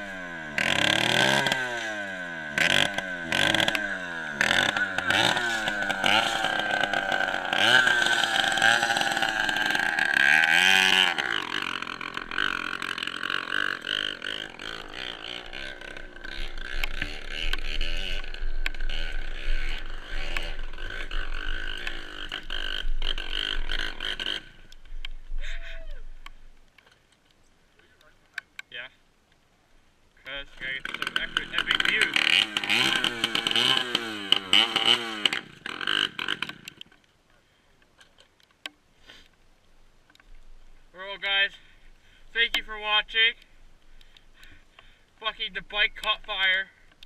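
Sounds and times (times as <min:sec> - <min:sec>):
dirt bike engine revving: 0:00.0 - 0:24.8, 0:30.4 - 0:36.8.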